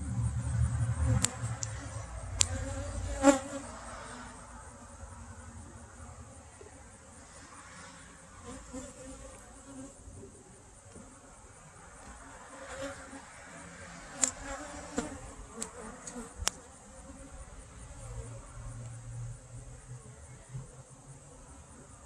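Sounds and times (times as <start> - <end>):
honey bees buzzing: 0.0 - 4.8.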